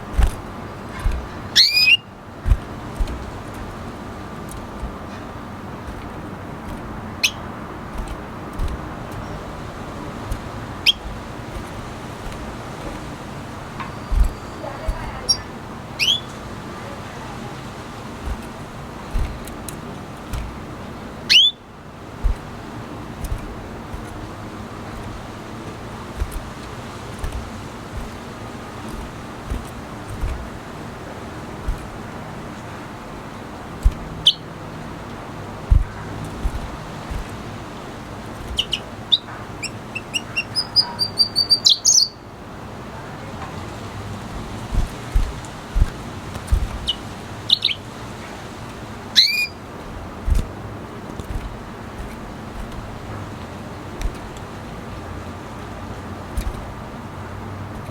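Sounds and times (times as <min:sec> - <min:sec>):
dull low thumps: 0:00.0 - 0:01.6, 0:02.3 - 0:15.7, 0:18.0 - 0:21.3, 0:22.0 - 0:32.2, 0:33.6 - 0:34.3, 0:35.6 - 0:37.5, 0:44.3 - 0:47.1, 0:49.8 - 0:54.5
steady background hum: 0:00.0 - 0:57.9
steady background noise: 0:00.0 - 0:57.9
bird whistled calls: 0:01.5 - 0:02.1, 0:07.2 - 0:07.4, 0:10.8 - 0:11.0, 0:13.9 - 0:16.4, 0:21.3 - 0:21.6, 0:34.2 - 0:34.4, 0:38.6 - 0:42.2, 0:46.8 - 0:47.8, 0:49.2 - 0:49.6
bird singing high notes: 0:01.6 - 0:02.0, 0:13.9 - 0:16.4, 0:21.3 - 0:21.6.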